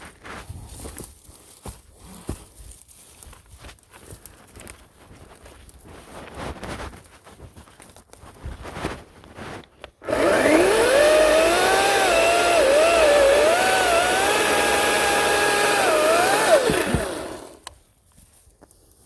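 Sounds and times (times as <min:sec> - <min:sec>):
electric chainsaw cutting wood: 0:10.0 - 0:17.8.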